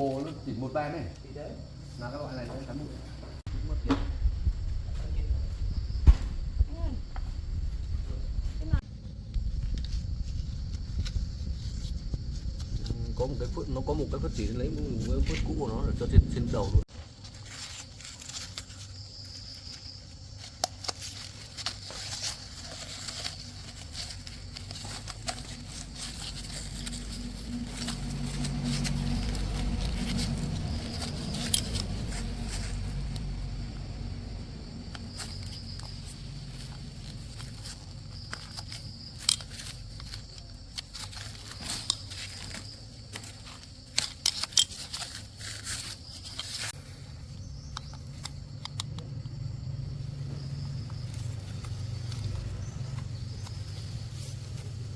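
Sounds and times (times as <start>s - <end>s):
low hum: 22.2s - 37.9s.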